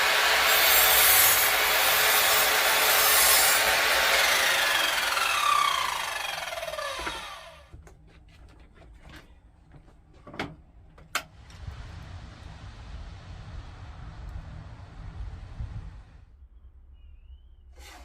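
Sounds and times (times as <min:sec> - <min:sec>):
power tool winding down: 0:00.0 - 0:07.7.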